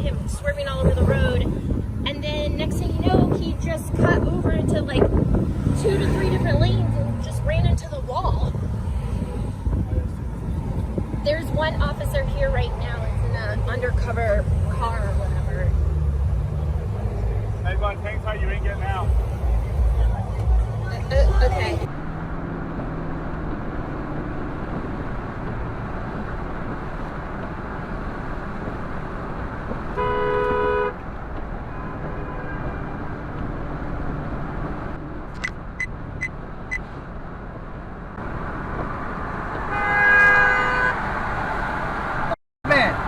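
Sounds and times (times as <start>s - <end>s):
traffic noise: 0.0s - 43.0s
car horn honks: 29.9s - 31.0s, 39.6s - 41.0s.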